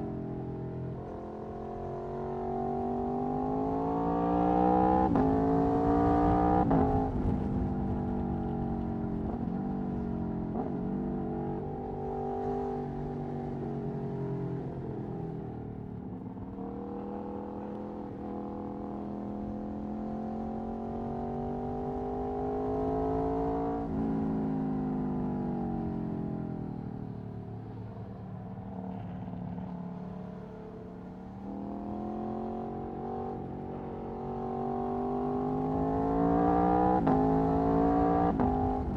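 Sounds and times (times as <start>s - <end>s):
motorcycle engine revving: 31.4s - 38.9s.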